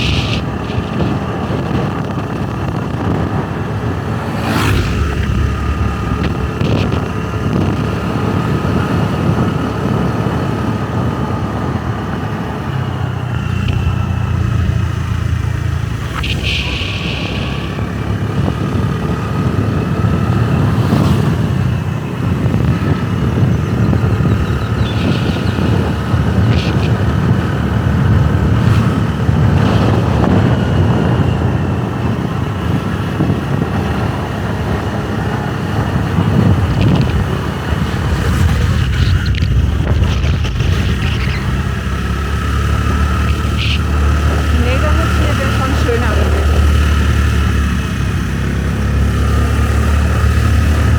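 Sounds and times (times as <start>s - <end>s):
motorbike engine and road rumble: 0.0s - 50.9s.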